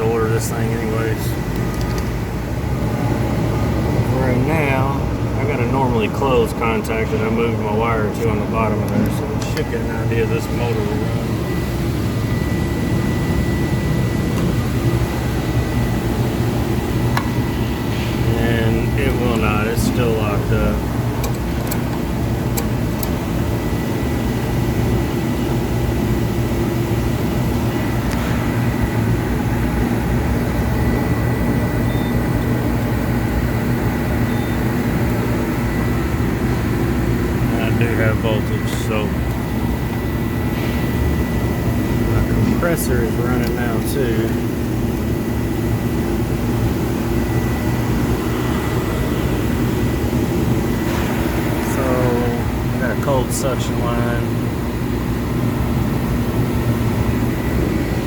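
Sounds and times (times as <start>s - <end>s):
air conditioner humming: 0.0s - 58.0s
faint high whine: 4.0s - 20.9s, 34.0s - 40.5s, 51.5s - 54.4s.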